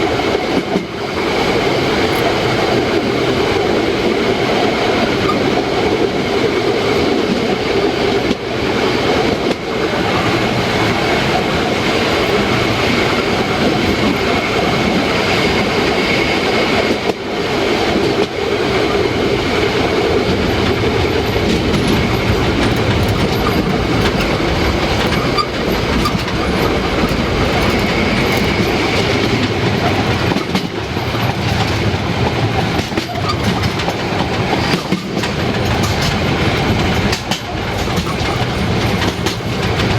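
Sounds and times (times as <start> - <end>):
steam train rumbling: 0.0 - 39.9
wheels clattering on rails: 17.8 - 39.9.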